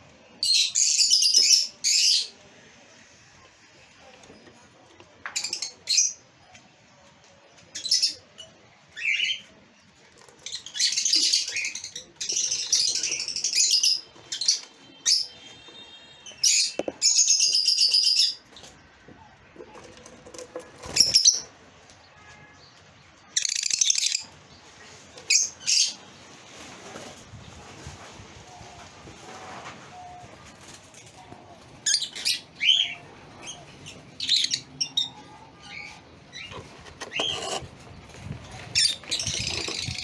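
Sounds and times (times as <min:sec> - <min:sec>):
lovebirds chirping: 0:31.8 - 0:40.0.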